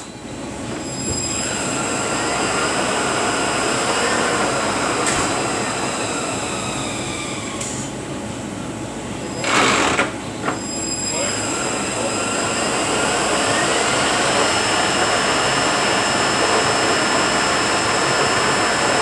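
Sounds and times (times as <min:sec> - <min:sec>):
truck transmission gear whine: 0:09.2 - 0:19.0.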